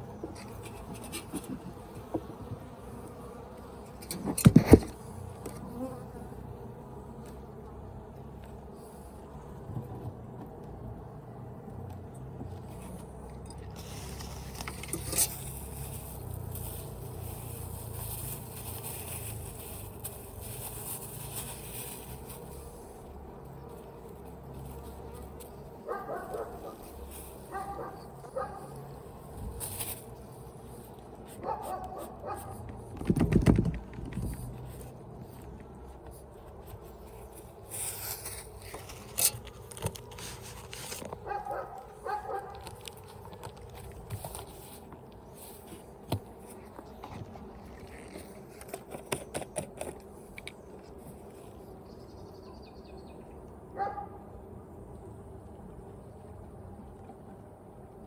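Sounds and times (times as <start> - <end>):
honeybees buzzing: 0.0 - 44.1
clicks and knocks from hive: 0.1 - 6.2, 31.4 - 36.6, 38.1 - 50.8.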